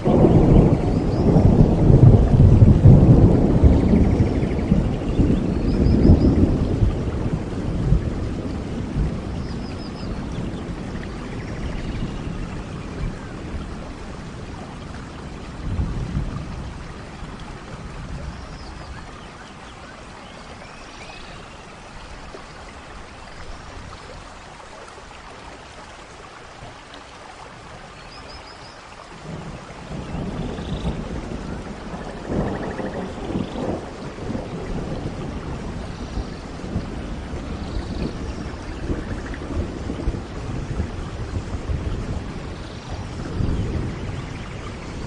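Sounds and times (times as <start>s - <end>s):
rolling thunder: 0.0s - 19.1s, 29.1s - 45.0s
steady rainfall: 0.0s - 45.0s.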